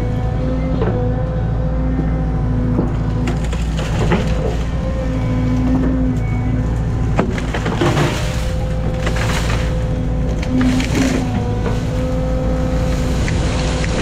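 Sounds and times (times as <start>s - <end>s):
excavator engine running: 0.0s - 14.0s
trees cracking and splintering: 0.0s - 14.0s
wood snapping: 7.1s - 12.2s.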